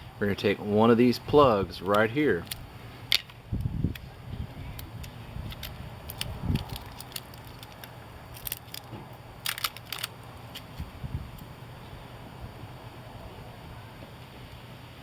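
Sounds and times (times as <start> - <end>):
small clicks and crackling: 4.7 - 11.5.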